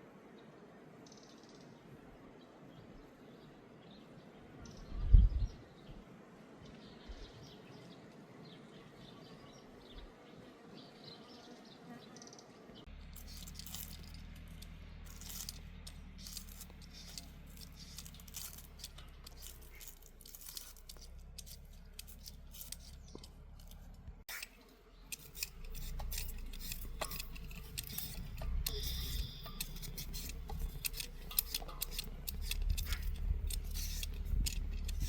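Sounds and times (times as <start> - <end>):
faint bird chirps: 0.3 - 23.4, 24.3 - 34.3
low steady hum: 12.8 - 35.0
crisp clicks and rustles: 12.9 - 35.0.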